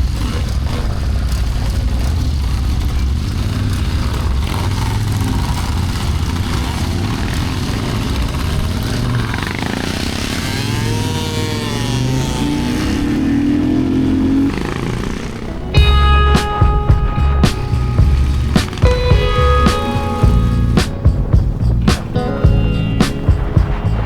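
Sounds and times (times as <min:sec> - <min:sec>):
motorcycle engine running: 0:00.0 - 0:24.0
wavering pitched tone: 0:15.6 - 0:21.8.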